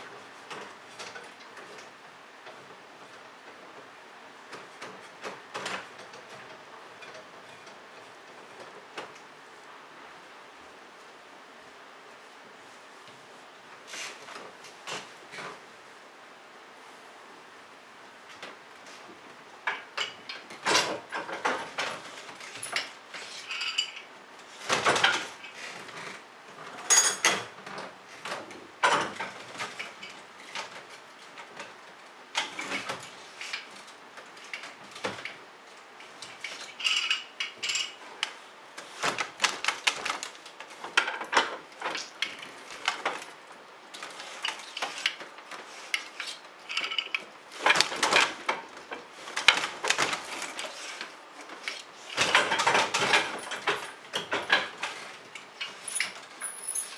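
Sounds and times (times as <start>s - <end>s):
dishes and cutlery clinking: 26.8s - 27.6s.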